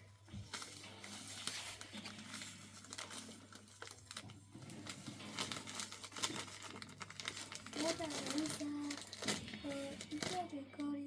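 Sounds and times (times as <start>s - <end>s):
crinkling and scratchy clicks: 0.4s - 11.0s.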